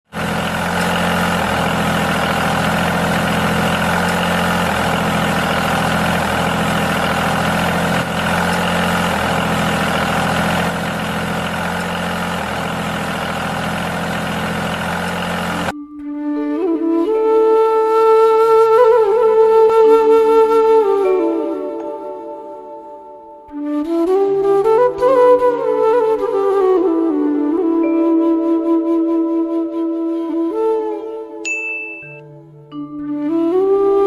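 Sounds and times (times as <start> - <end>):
small tractor engine droning: 0.1 - 15.7, 20.9 - 22.8, 31.5 - 32.6.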